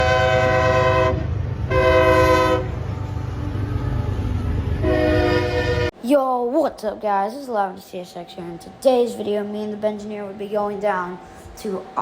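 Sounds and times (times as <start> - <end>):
locomotive air horn blasts: 0.0 - 2.8, 4.8 - 5.9
train rumbling: 0.0 - 6.0.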